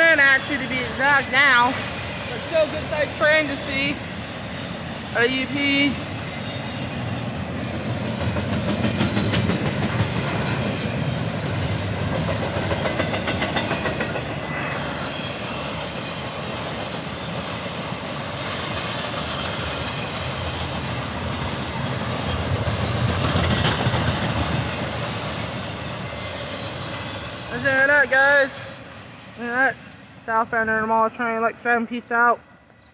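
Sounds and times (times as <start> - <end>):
wheels clicking on rails: 7.7 - 27.1.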